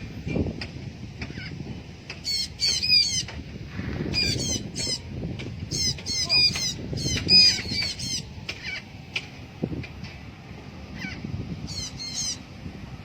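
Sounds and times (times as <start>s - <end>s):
parrot squawking: 5.7s - 8.9s, 11.0s - 12.4s.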